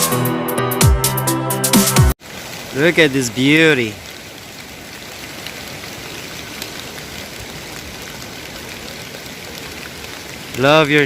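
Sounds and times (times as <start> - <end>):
rain falling: 2.1 - 11.0
waterfall rushing: 2.2 - 11.0.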